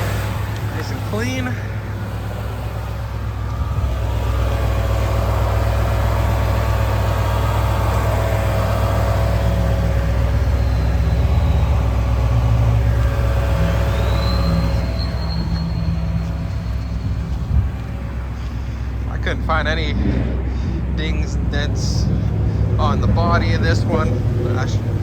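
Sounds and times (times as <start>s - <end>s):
thin rising whine: 0.0s - 22.3s
vehicle engine idling: 0.0s - 25.0s.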